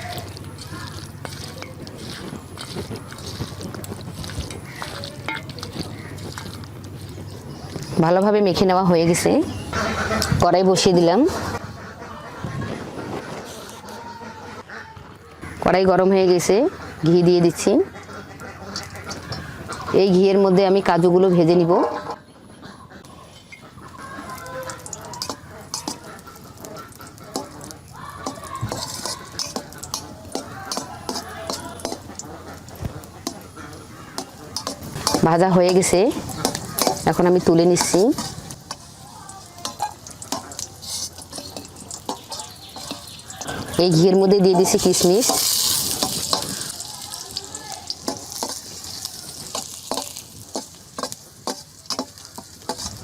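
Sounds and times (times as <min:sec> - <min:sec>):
metal spatula scraping a pan: 0:00.0 - 0:06.1, 0:23.1 - 0:53.0
light sizzle: 0:00.0 - 0:10.3, 0:23.0 - 0:53.0.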